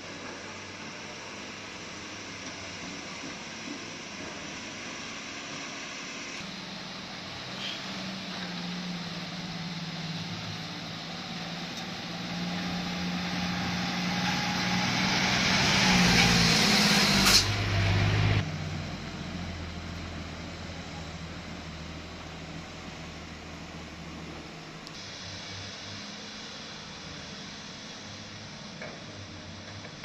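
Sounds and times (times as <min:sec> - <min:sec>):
truck engine running: 0:00.1 - 0:30.0
hiss: 0:01.1 - 0:17.7, 0:24.9 - 0:30.0.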